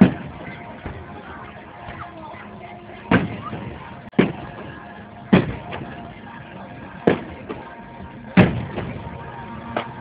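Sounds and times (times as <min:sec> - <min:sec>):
firework shells booming: 0:03.1 - 0:04.7, 0:05.3 - 0:06.0, 0:07.0 - 0:07.7, 0:08.4 - 0:09.2
faint firework bangs: 0:03.1 - 0:06.1, 0:07.0 - 0:07.7, 0:08.4 - 0:09.2.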